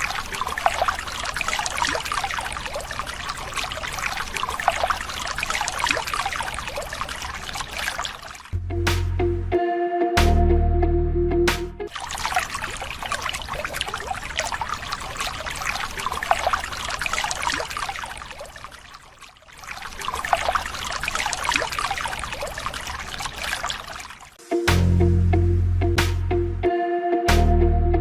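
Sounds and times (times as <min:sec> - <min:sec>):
water trickling and pouring: 0:00.0 - 0:08.6, 0:11.9 - 0:24.4.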